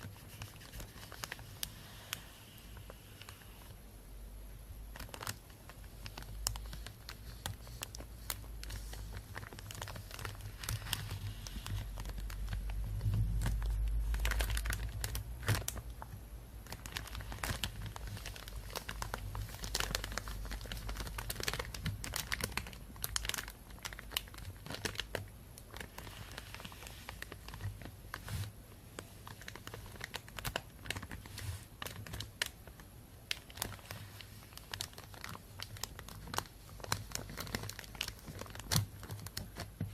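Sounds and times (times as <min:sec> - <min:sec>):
plastic bag crinkling: 0:00.0 - 0:03.8, 0:04.9 - 0:39.9.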